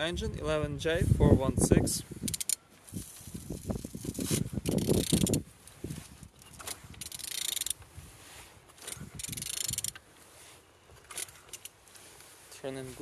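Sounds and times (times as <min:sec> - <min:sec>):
engine turning over by hand: 0:02.3 - 0:05.5, 0:08.7 - 0:10.1.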